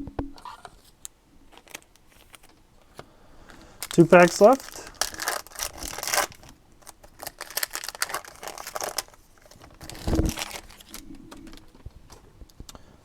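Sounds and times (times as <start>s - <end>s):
foil wrapper crinkling: 1.5s - 2.6s, 3.6s - 12.6s.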